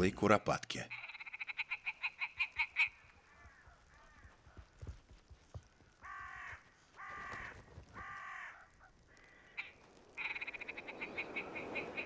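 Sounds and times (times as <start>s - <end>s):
bird giving harsh nasal calls: 9.3s - 12.0s.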